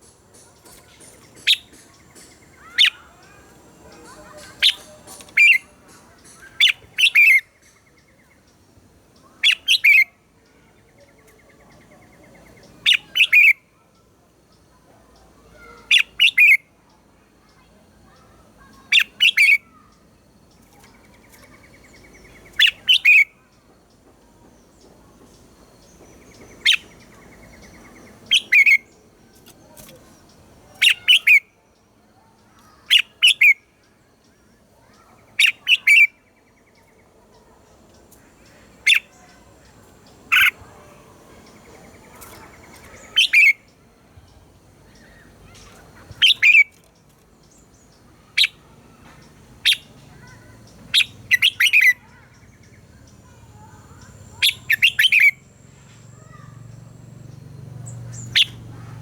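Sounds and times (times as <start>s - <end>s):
bird singing whistled phrases: 1.4s - 1.9s, 2.5s - 3.5s, 6.4s - 7.6s, 22.2s - 23.3s, 26.6s - 28.9s, 30.8s - 31.5s, 34.9s - 36.2s, 42.9s - 43.7s, 45.0s - 46.7s, 51.0s - 52.2s, 53.9s - 55.5s, 58.1s - 58.6s.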